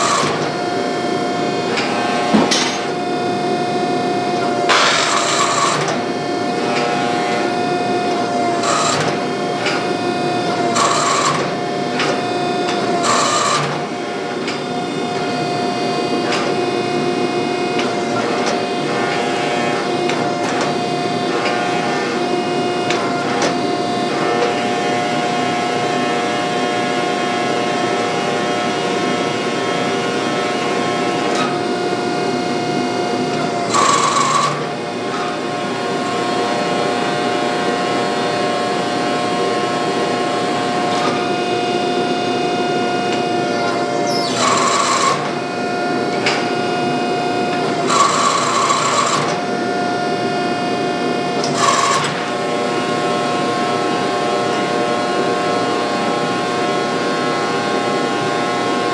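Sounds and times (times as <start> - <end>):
harsh bursts of power tool: 0.0 - 0.8, 4.5 - 7.6, 8.2 - 14.4, 33.4 - 36.6, 43.3 - 49.6, 51.4 - 54.1
power tool motor hum: 0.0 - 3.0, 4.4 - 16.6, 33.2 - 37.4, 39.0 - 49.9, 51.4 - 54.8.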